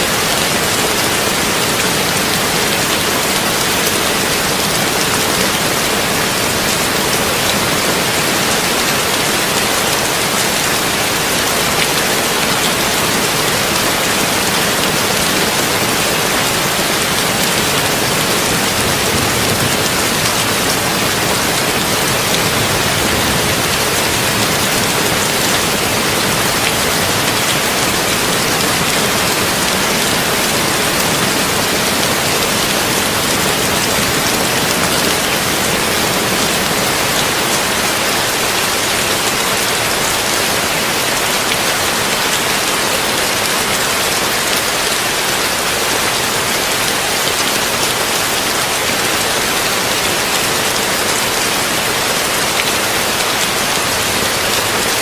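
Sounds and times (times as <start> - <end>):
heavy rain on a tin roof: 0.0 - 55.0.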